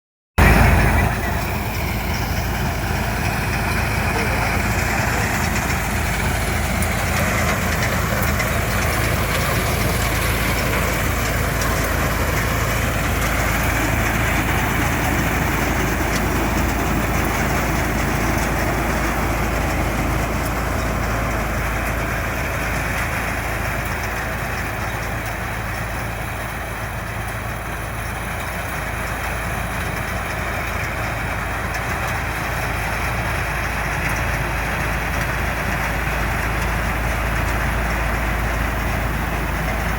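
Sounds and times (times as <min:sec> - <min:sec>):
harvester engine running: 0:00.4 - 0:39.9.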